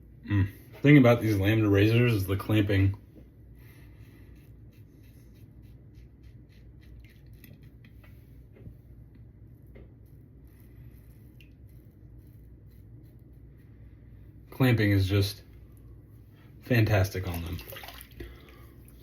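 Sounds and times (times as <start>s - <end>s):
razor scratching through stubble: 4.3s - 7.7s.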